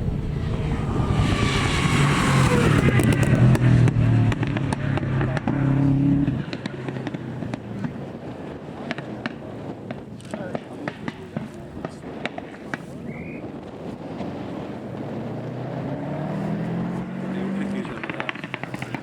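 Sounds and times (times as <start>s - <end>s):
rally car passing full throttle: 0.0s - 10.1s, 13.6s - 19.0s
engine ticks and pops: 2.9s - 5.7s, 6.4s - 8.0s, 8.8s - 12.9s, 17.6s - 19.0s.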